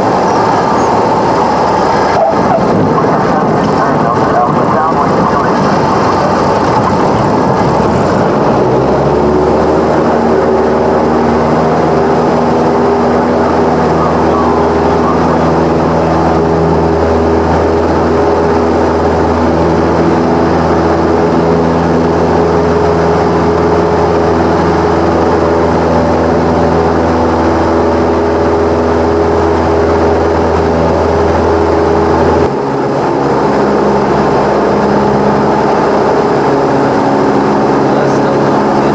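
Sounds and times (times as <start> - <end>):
light aircraft engine and propeller drone: 0.0 - 38.9.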